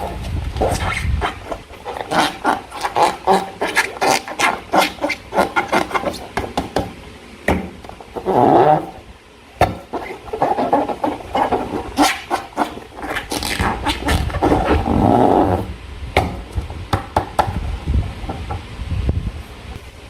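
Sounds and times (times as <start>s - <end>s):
wet slime squelching: 0.0s - 6.3s, 9.7s - 15.3s.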